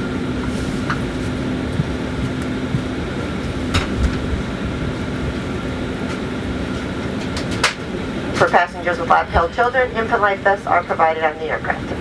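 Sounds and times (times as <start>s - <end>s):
airliner cabin hum and rush: 0.0s - 12.0s.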